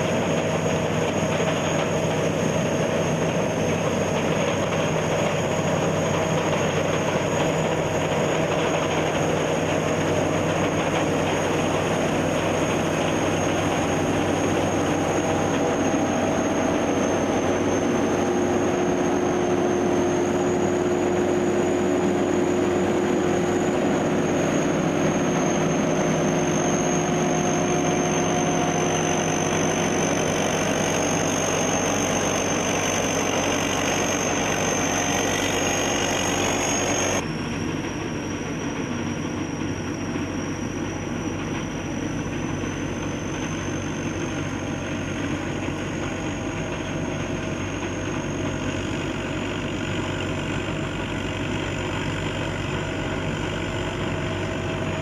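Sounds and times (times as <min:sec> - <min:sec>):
combine harvester droning: 0:00.0 - 0:55.0.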